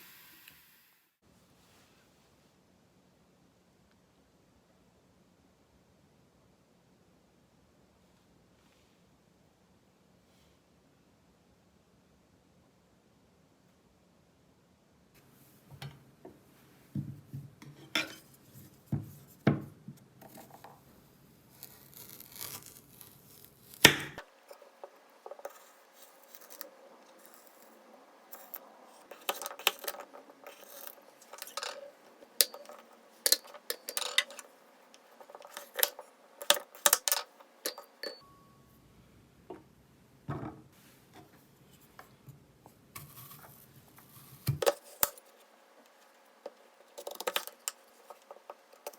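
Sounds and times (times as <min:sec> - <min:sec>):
dishes and utensils clinking: 0:17.6 - 0:18.3, 0:29.1 - 0:34.5, 0:35.2 - 0:38.3.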